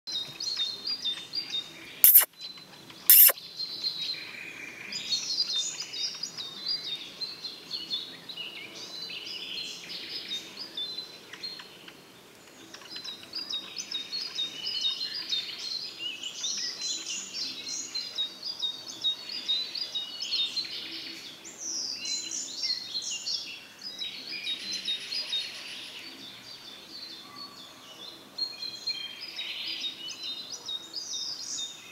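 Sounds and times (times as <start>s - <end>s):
sharp clicks: 2.0s - 2.3s, 3.1s - 3.4s.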